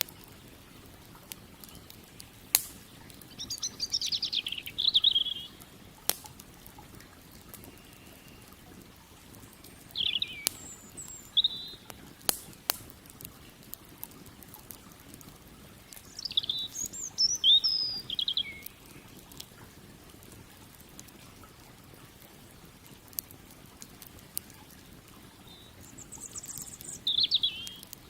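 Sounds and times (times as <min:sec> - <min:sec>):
campfire crackling pops: 0:00.0 - 0:28.0
songbird chirps and trills: 0:01.5 - 0:06.1, 0:07.2 - 0:12.0, 0:15.8 - 0:19.6, 0:25.2 - 0:28.0.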